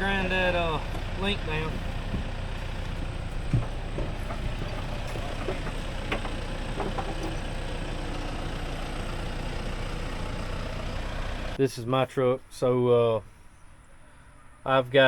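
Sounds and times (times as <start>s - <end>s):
engine idling: 0.0s - 11.6s.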